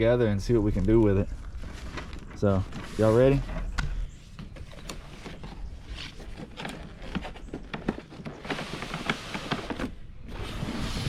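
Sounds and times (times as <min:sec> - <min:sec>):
packaging rustling: 0:01.4 - 0:10.1.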